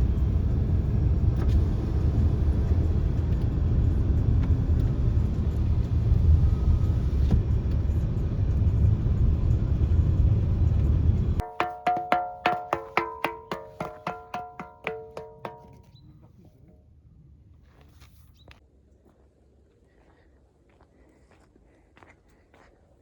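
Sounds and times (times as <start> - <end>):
music with wood-block percussion: 11.4 - 15.9.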